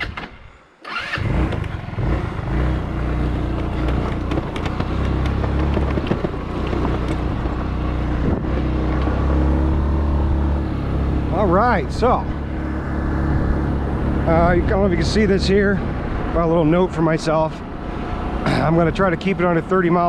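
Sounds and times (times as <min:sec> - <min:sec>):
scooter engine running: 0:00.9 - 0:15.2.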